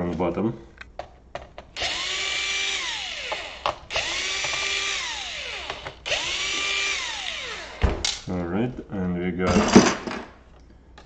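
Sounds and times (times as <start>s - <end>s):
electric screwdriver whining: 1.8s - 7.9s.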